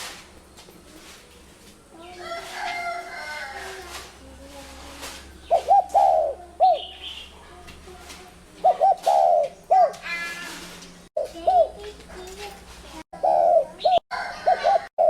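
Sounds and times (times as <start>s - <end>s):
dove cooing: 5.4s - 7.1s, 8.6s - 10.1s, 11.2s - 12.0s, 13.2s - 15.0s.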